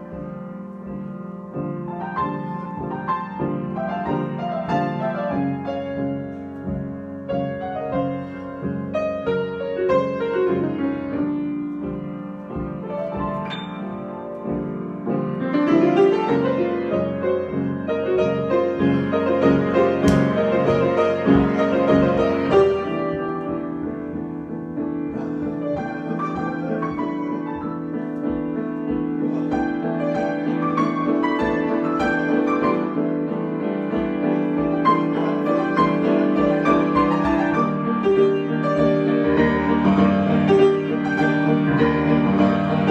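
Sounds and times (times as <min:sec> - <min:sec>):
solo piano improvisation: 0:00.0 - 0:42.9.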